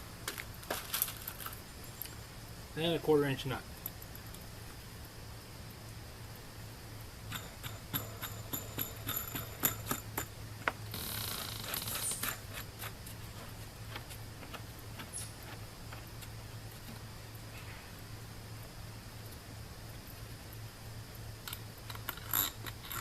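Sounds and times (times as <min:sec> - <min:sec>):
rustle: 0:00.0 - 0:23.0
steady low hum: 0:00.0 - 0:23.0
metal washers and nuts clinking: 0:07.3 - 0:10.3.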